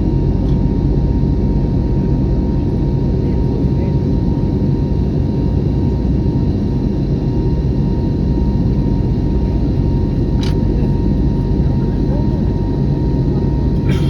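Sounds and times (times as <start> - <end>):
jet airliner rumble: 0.0 - 14.0.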